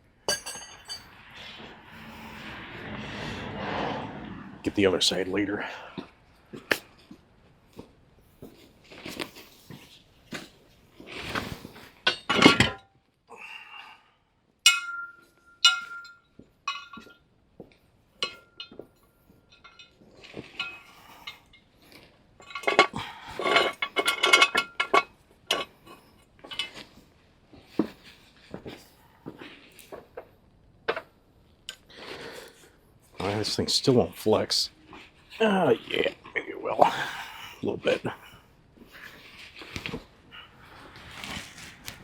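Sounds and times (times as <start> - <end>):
metal tools clinking: 0.3 - 1.2, 12.0 - 12.9, 14.7 - 17.2, 18.2 - 21.6, 22.4 - 25.7.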